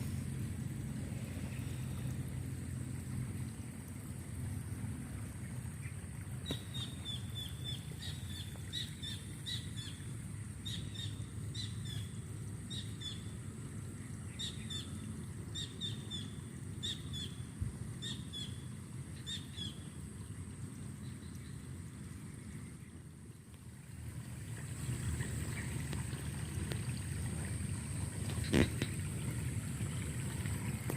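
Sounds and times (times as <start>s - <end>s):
steady low rumble: 0.0s - 8.8s, 20.2s - 30.9s
bird chirping: 6.4s - 10.0s.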